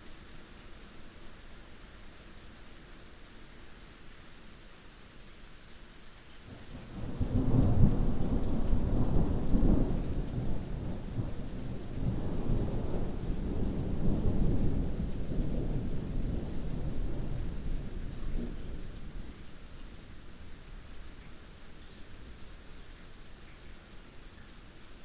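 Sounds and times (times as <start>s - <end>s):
heavy rain: 0.0s - 25.0s
thunder rumbling: 6.8s - 20.1s.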